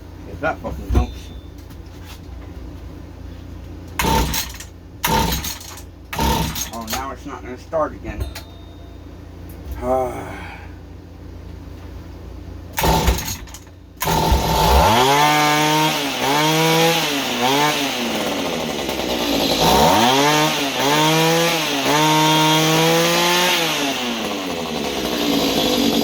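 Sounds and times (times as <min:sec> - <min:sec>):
small two-stroke engine revving: 0:04.0 - 0:07.1, 0:12.8 - 0:26.0
starter cord pulls: 0:04.0 - 0:07.1, 0:12.8 - 0:14.8.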